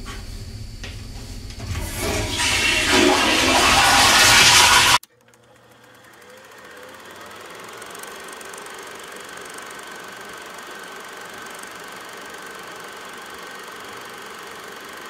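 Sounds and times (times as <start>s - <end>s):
faint hum with high tone: 0.0s - 15.0s.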